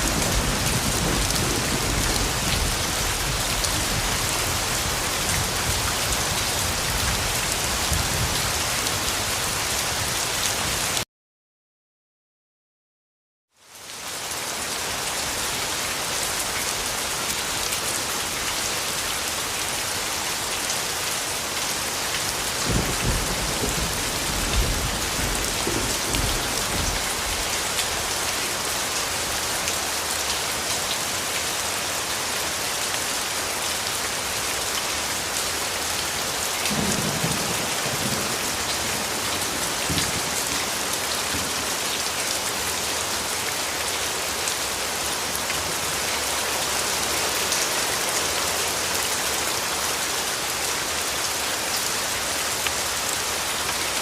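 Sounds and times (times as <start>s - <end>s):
thunder rumbles: 0.0s - 4.3s, 22.6s - 27.4s, 36.7s - 40.6s
heavy rain falling: 0.0s - 11.0s, 13.6s - 54.0s.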